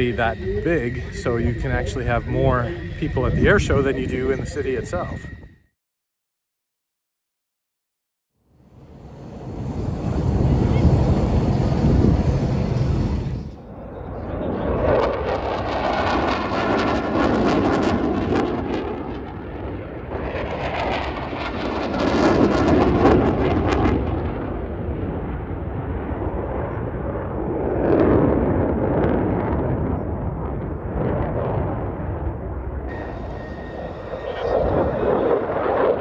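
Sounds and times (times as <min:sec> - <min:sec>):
jet engine roar: 0:00.0 - 0:05.5, 0:08.6 - 0:36.0.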